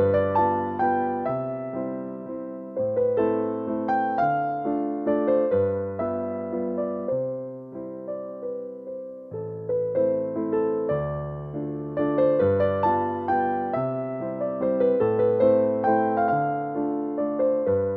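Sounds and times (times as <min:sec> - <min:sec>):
soft slow piano music: 0:00.0 - 0:17.9.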